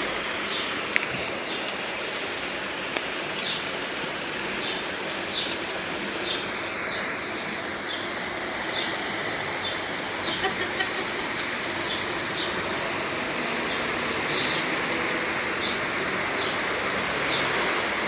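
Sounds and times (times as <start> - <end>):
outdoor background hiss: 0.0 - 18.0
bird chirping: 3.4 - 3.6, 4.5 - 5.6, 7.8 - 9.0.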